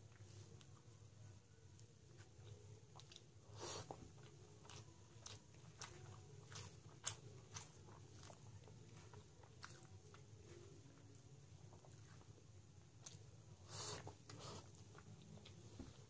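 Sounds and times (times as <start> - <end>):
low steady hum: 0.0 - 16.0
chewing with wet mouth clicks: 1.8 - 11.1, 13.0 - 13.3.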